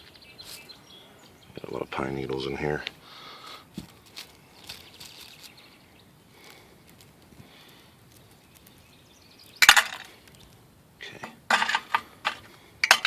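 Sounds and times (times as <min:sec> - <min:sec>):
stones clicking: 0:08.1 - 0:10.6
pebbles rattling into tank: 0:09.6 - 0:10.2.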